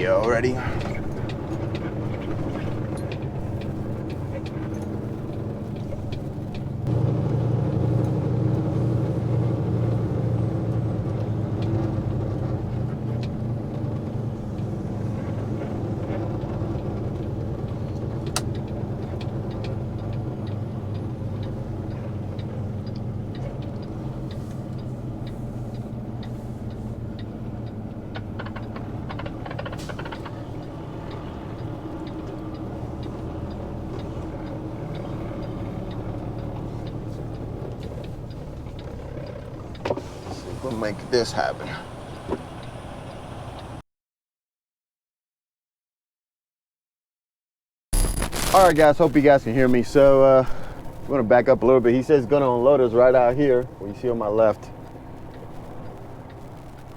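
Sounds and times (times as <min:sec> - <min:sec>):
diesel truck engine running: 0:00.0 - 0:43.8, 0:48.0 - 0:56.9
faint clicks and ticks: 0:15.3 - 0:40.0, 0:48.0 - 0:56.9.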